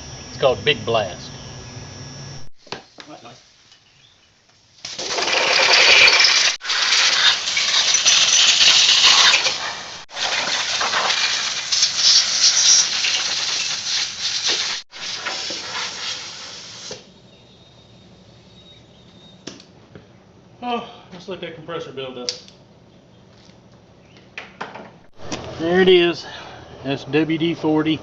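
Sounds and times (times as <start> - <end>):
compressed air blow gun hissing: 8.6 - 17.1.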